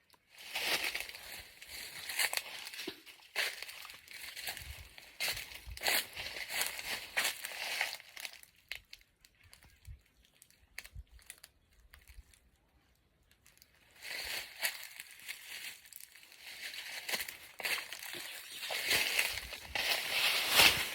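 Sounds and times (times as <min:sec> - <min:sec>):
rustling and crinkling: 0:00.1 - 0:12.4, 0:13.4 - 0:20.9.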